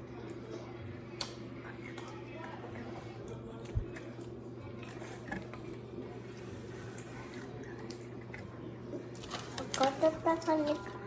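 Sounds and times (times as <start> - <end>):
low background hum: 0.0 - 11.0
chewing food: 0.1 - 11.0.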